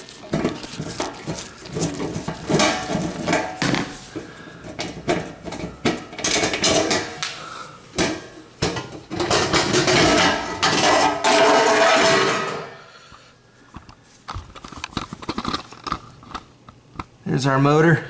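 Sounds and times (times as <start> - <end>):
metal scraping and rattling: 0.0 - 7.2, 8.0 - 12.8.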